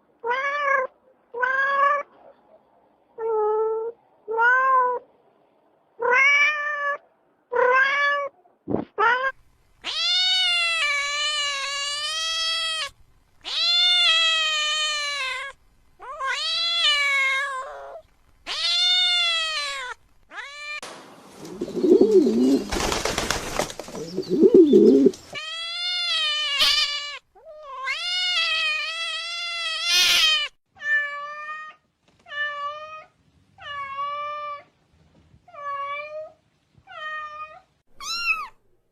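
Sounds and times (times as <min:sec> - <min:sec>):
cat meowing: 0:09.0 - 0:20.8, 0:25.4 - 0:34.7, 0:36.9 - 0:38.6.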